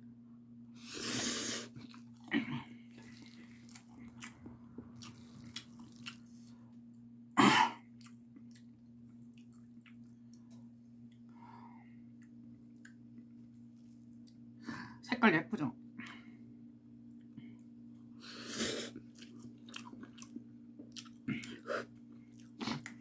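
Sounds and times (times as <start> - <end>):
person chewing noodles: 0.9 - 6.6, 7.8 - 11.3, 18.0 - 23.0.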